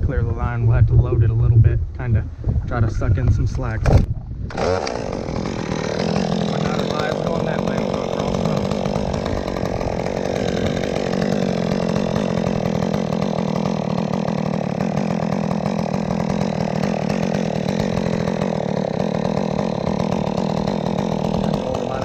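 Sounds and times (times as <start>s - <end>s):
chainsaw running: 4.5s - 22.0s.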